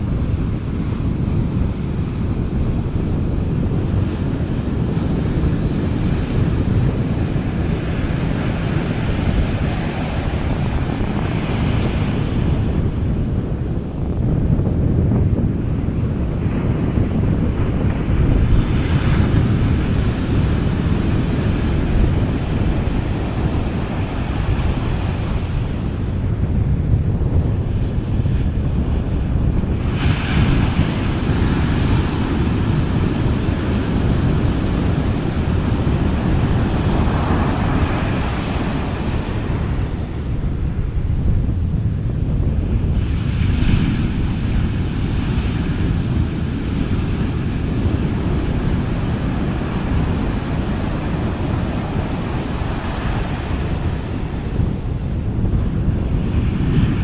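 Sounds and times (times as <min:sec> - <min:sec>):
sea waves washing on beach: 0:00.0 - 0:14.5, 0:15.5 - 0:57.0
wind rumble on microphone: 0:00.0 - 0:57.0.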